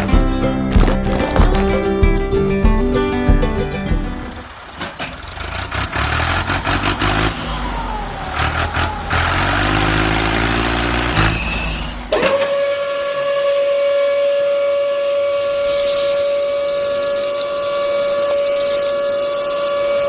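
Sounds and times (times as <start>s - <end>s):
truck engine revving: 4.4s - 12.1s
high whistle-like tone: 11.2s - 20.0s.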